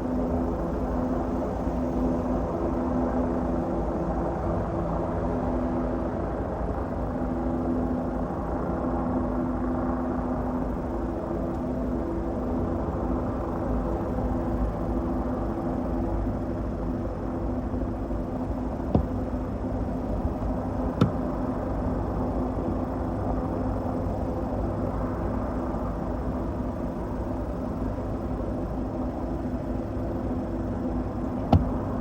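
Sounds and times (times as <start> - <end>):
engine drone: 10.2 - 32.0.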